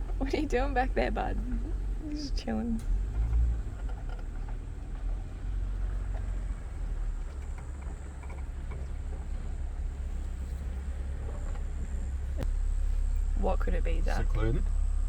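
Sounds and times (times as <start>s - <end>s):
engine rumble inside car cabin: 0.0s - 15.0s
faint ticks and rattles: 0.0s - 15.0s.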